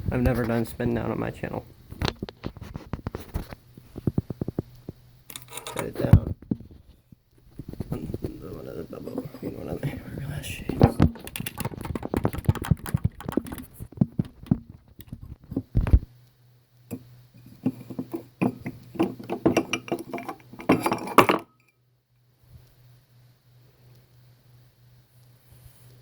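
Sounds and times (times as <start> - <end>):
low steady hum: 0.0 - 26.0
clicks and clinks of handling: 5.3 - 5.9, 16.9 - 21.7.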